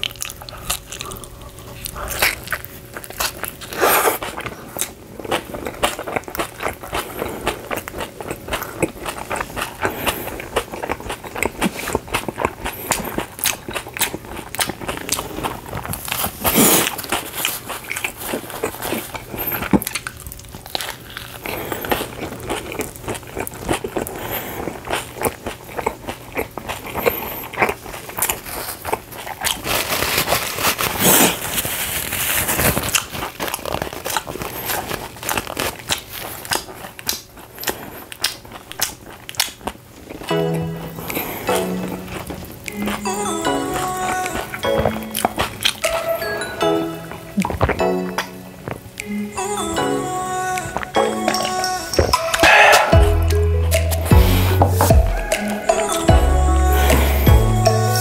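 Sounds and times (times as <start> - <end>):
person chewing crunchy pizza: 0.0 - 58.0
paper napkin crinkling: 27.8 - 39.2.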